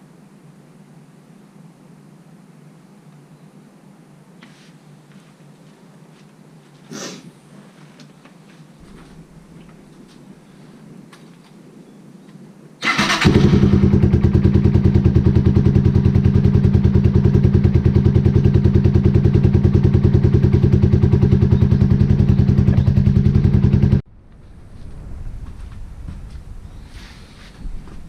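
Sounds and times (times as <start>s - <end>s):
motorcycle engine cranking: 12.8s - 14.0s
motorcycle engine idling: 12.8s - 24.0s.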